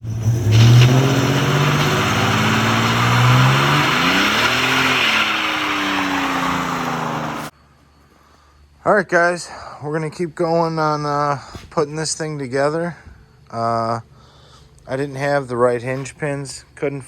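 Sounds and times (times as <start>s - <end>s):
truck engine running loud: 0.0s - 7.5s.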